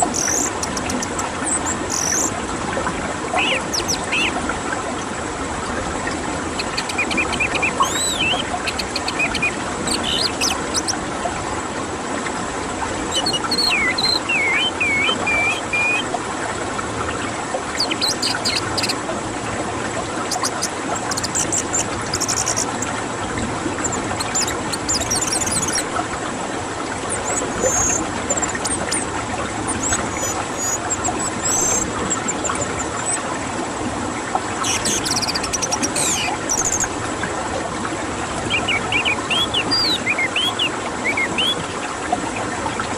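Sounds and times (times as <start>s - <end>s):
thrush whistled song: 0.0s - 2.3s, 3.4s - 4.4s, 6.6s - 11.0s, 13.1s - 16.2s, 17.8s - 19.0s, 20.3s - 22.9s, 23.8s - 25.9s, 27.1s - 33.2s, 34.6s - 36.9s, 38.5s - 41.6s
constant dense noise: 0.0s - 42.9s.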